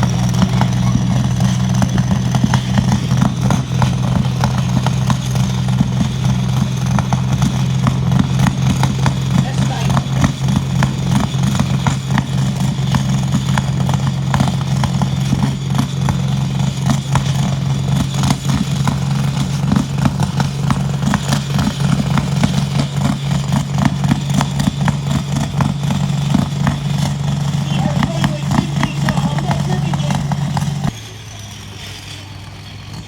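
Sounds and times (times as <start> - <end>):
tractor engine at high speed: 0.0 - 33.0.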